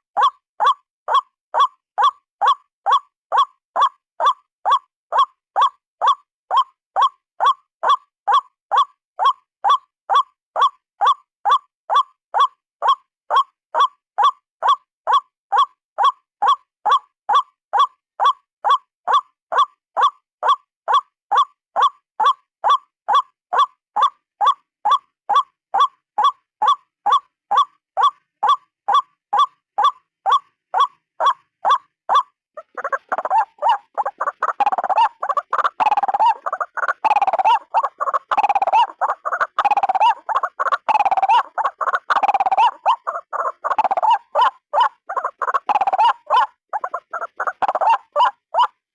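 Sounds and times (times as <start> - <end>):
bird calling repeated notes: 0.2 - 48.8
raucous croaking bird calls: 18.2 - 48.8.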